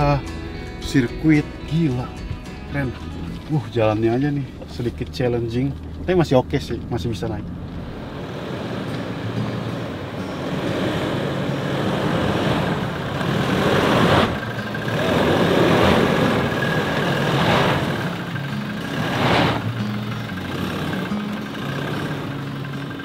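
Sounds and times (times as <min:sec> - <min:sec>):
car engine pulling uphill: 0:00.0 - 0:23.0.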